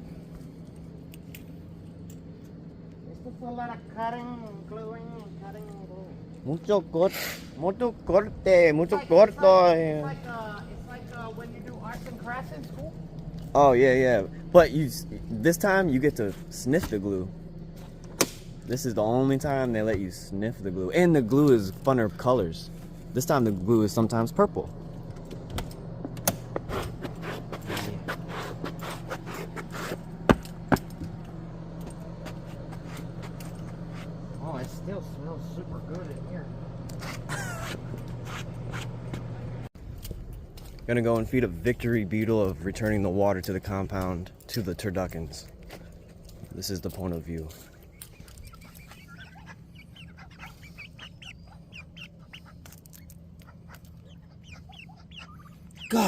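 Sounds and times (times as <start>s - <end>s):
steady low hum: 0.0s - 56.0s
scraping and rustling strokes: 26.6s - 30.2s
ducks quacking: 47.9s - 56.0s.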